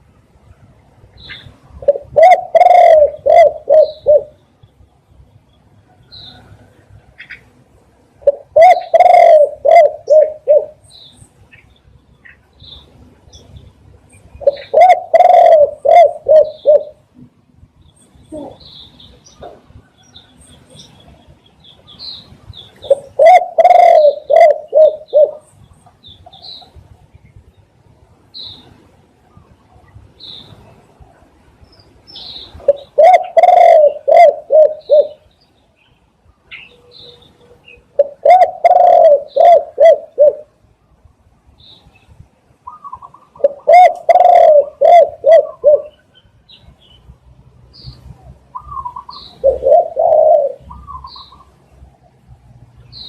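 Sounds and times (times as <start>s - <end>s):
small birds chirping: 1.0s - 17.1s, 17.7s - 53.0s
dove cooing: 1.3s - 4.4s, 8.2s - 10.8s, 14.4s - 17.1s, 18.3s - 18.7s, 22.8s - 25.5s, 32.6s - 35.2s, 37.6s - 40.6s, 42.6s - 46.1s, 48.0s - 51.5s.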